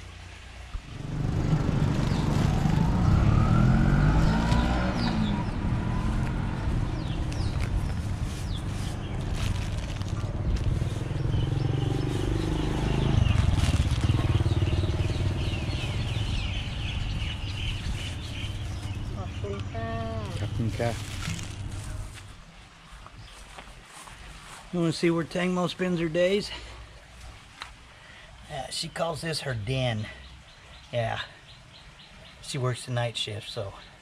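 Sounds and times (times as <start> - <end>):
birds chirping: 0.0 - 27.2, 27.9 - 34.0
vehicle engine revving: 0.8 - 22.3.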